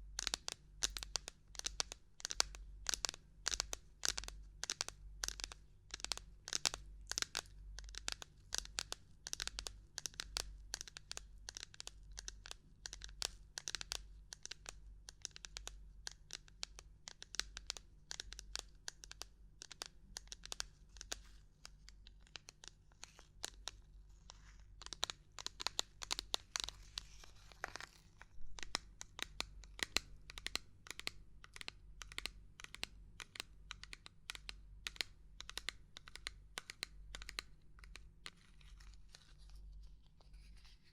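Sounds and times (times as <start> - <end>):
scratchy rustling: 26.4 - 28.4.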